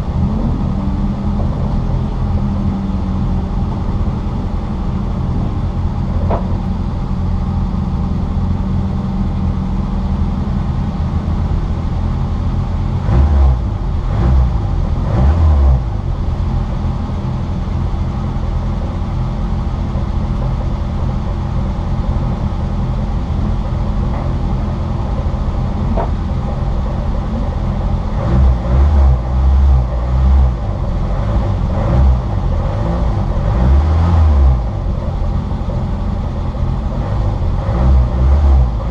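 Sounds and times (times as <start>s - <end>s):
race car engine running hard: 0.0s - 38.9s
road noise: 0.0s - 38.9s.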